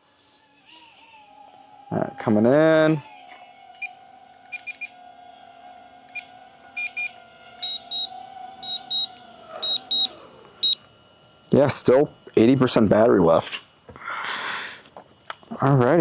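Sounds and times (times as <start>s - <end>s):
faint steady hum: 0.0s - 16.0s
short electronic beeps: 6.8s - 11.2s.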